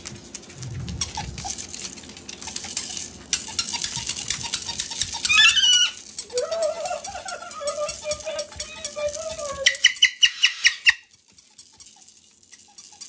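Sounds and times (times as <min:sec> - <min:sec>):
parrot squawking: 0:02.4 - 0:11.1
long wavering parrot call: 0:05.2 - 0:11.0.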